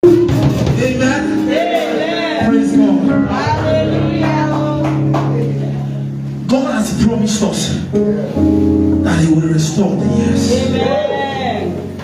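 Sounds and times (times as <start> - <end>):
man's voice: 0.7 - 4.0, 6.4 - 12.0.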